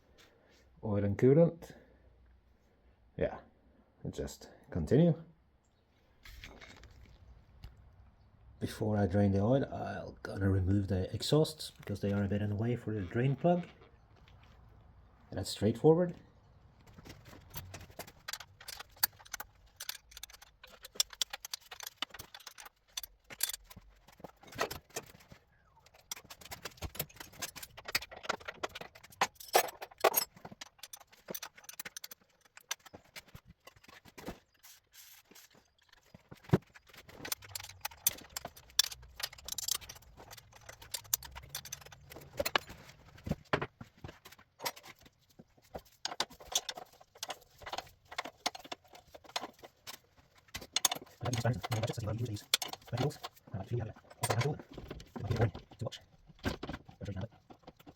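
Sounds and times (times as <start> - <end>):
metal tools clinking and scraping: 16.9 - 57.9.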